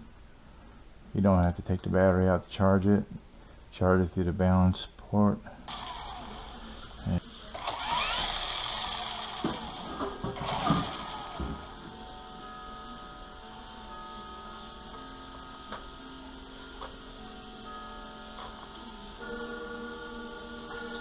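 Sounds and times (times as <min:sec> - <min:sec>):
small electric motor whine: 0:05.7 - 0:21.0.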